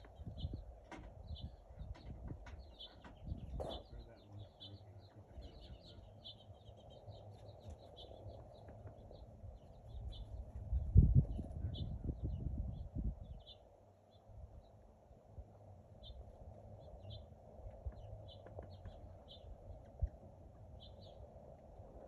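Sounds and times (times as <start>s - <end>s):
wind buffeting microphone: 0.0s - 4.2s, 5.3s - 13.6s
small birds chirping: 0.0s - 22.0s.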